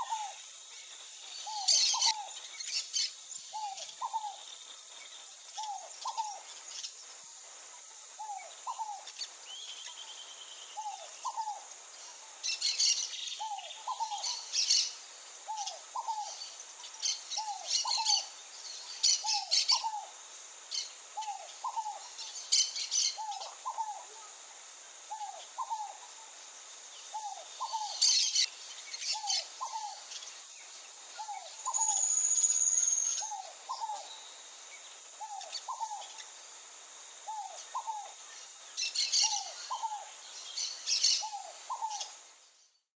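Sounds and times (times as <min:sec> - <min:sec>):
high bird chirping: 0:31.2 - 0:34.2.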